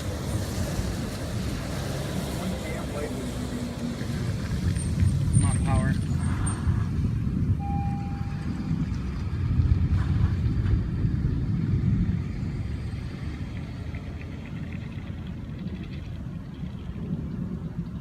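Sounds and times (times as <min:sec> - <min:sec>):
thunder rumbling: 0:03.2 - 0:18.0
short steady tone: 0:07.6 - 0:08.8.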